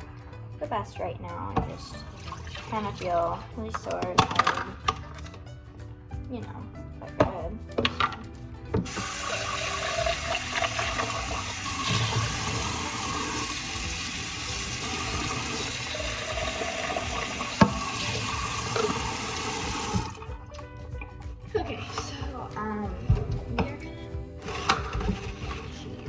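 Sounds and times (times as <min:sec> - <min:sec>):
water running from a tap: 0:01.6 - 0:05.0, 0:08.7 - 0:23.7, 0:24.3 - 0:26.0.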